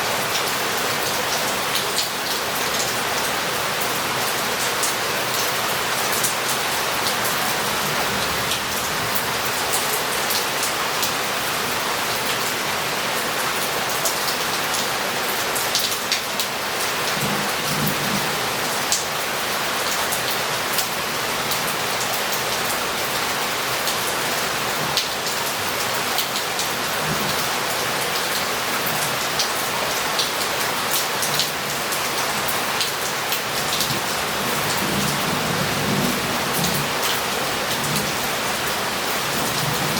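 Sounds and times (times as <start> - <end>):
heavy rain on roof tiles: 0.0 - 39.9
rumbles of thunder: 33.9 - 37.0.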